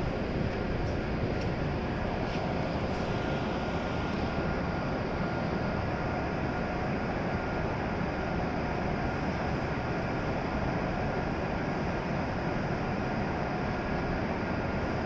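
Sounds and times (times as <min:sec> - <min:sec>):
faint high whine: 0:00.0 - 0:15.0
train running equipment hum: 0:00.0 - 0:15.0.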